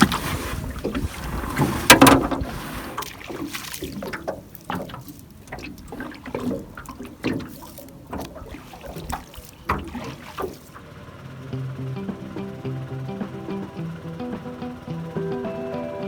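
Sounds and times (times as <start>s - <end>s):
water splashes and drips: 0.0s - 10.9s.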